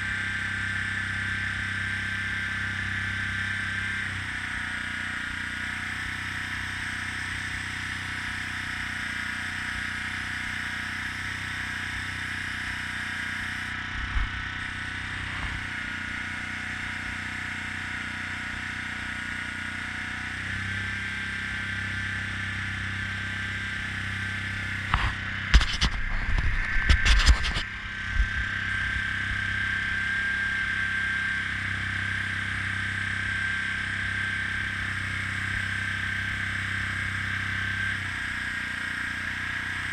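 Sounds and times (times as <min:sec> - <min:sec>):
low steady hum: 0:13.6 - 0:15.8, 0:23.6 - 0:33.6.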